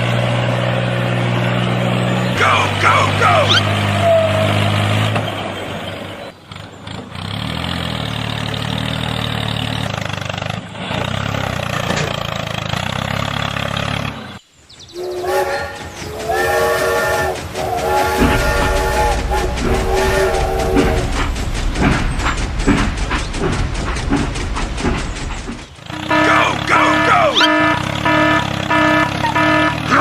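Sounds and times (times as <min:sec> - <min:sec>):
vehicle engine running: 0:00.0 - 0:30.0
multi-tone horn blasts: 0:15.0 - 0:21.2, 0:25.9 - 0:30.0.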